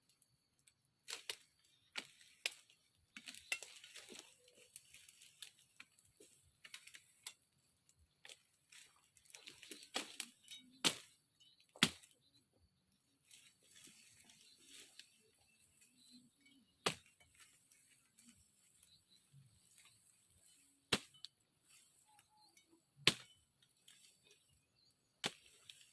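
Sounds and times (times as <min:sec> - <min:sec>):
sharp woody snaps and knocks: 0:01.0 - 0:07.4, 0:08.2 - 0:11.2, 0:11.8 - 0:12.2, 0:16.8 - 0:17.2, 0:20.9 - 0:21.3, 0:23.0 - 0:24.1, 0:25.2 - 0:25.9
leaves and branches rustling: 0:01.0 - 0:12.3, 0:13.0 - 0:25.9.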